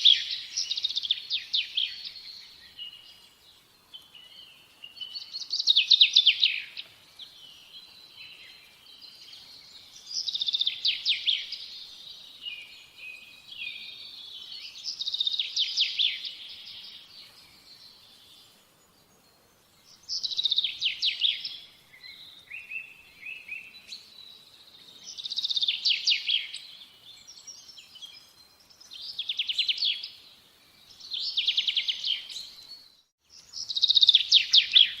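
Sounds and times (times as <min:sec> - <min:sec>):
songbird trilling: 0:33.6 - 0:35.0.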